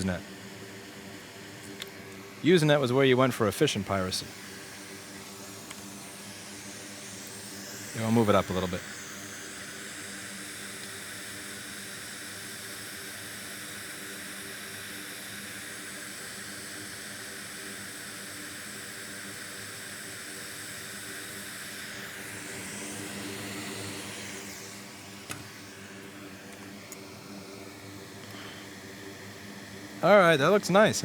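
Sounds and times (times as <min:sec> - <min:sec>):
hot air blower hissing: 0:00.0 - 0:31.0.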